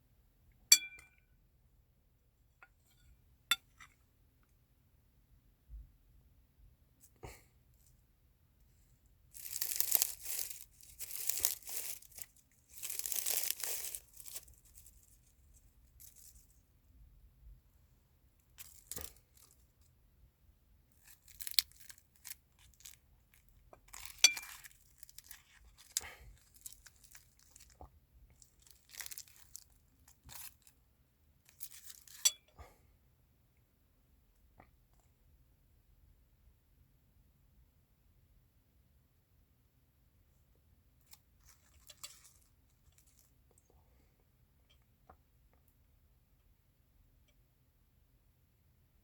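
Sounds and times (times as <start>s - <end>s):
packaging being torn and crumpled: 9.4s - 14.9s, 21.0s - 23.0s, 28.4s - 30.7s.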